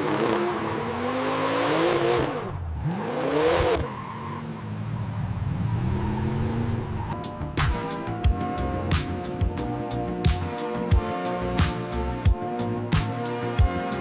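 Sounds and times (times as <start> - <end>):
car engine revving: 0.0 - 10.8.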